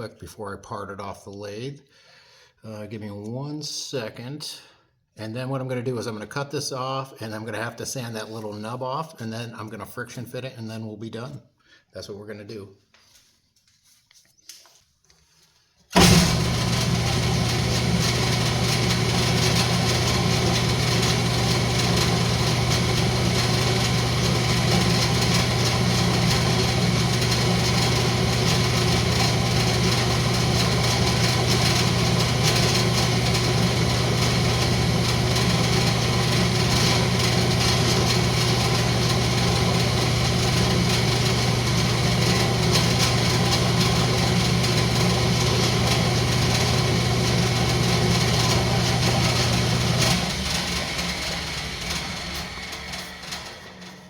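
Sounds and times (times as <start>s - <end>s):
wood lathe motor humming: 16.0s - 54.0s.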